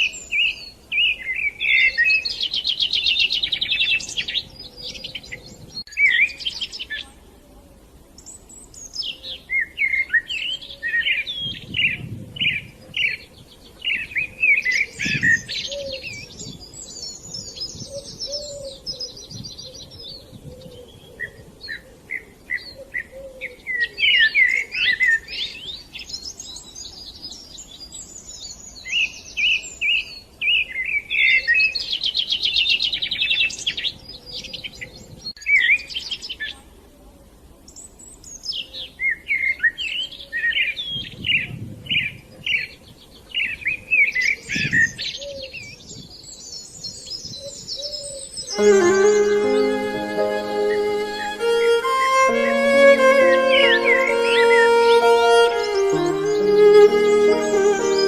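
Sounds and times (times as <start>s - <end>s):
songbirds chirping and trilling: 0.0s - 36.6s.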